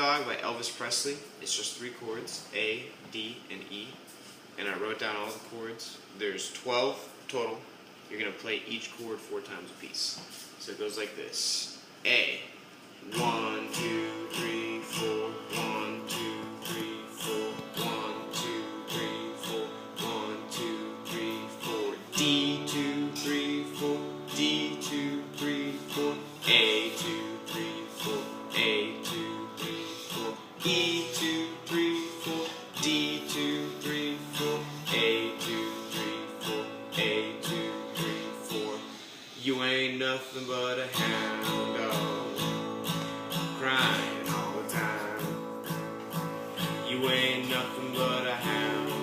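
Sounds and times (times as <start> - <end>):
guitar strumming blues chords: 13.1 - 39.1, 40.7 - 49.0.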